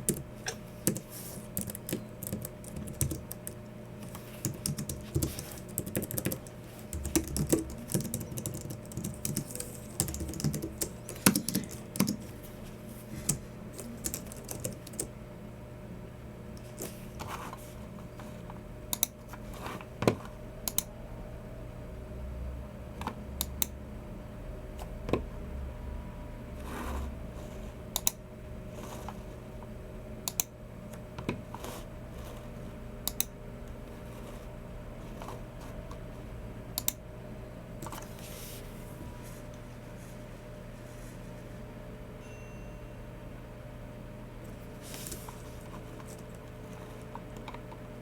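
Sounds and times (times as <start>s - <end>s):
soft keyboard keystrokes: 0.0s - 12.3s, 13.2s - 15.1s.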